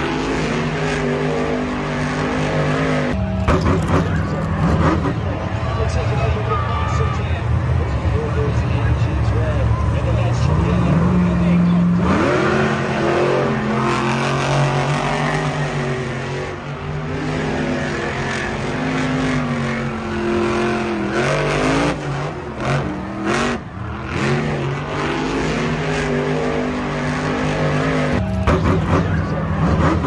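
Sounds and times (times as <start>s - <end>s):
vehicle engine revving: 0.0s - 30.0s.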